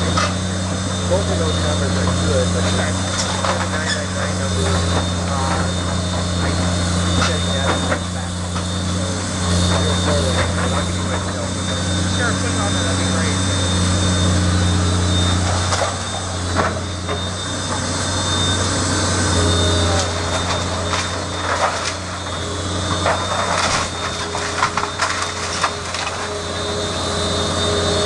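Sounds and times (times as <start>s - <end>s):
demolition machinery engine: 0.0s - 28.0s
wood cracking and crunching: 20.0s - 26.5s.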